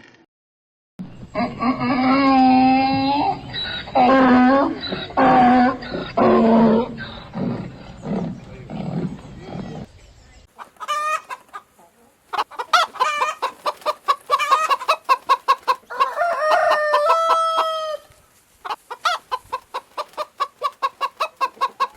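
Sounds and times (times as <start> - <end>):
lower repeated bird calls: 1.0 - 18.0
chickens clucking: 1.1 - 21.9.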